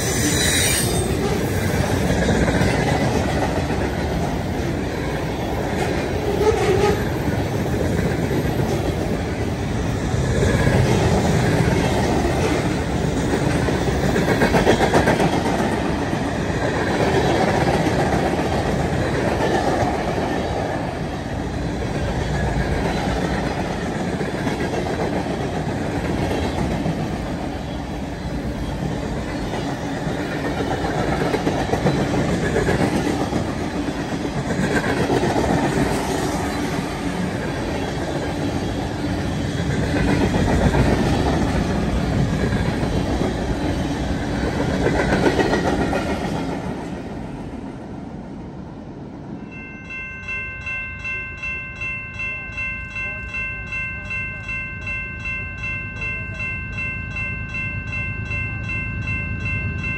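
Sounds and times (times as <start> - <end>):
freight train passing: 0.0 - 59.9
train wheels clattering on rails: 1.0 - 47.4.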